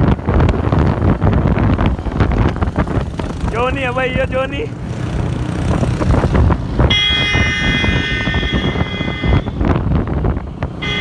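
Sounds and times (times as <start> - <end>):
tractor diesel engines rumbling: 0.0 - 11.0
high multi-note horn tone: 6.9 - 9.6.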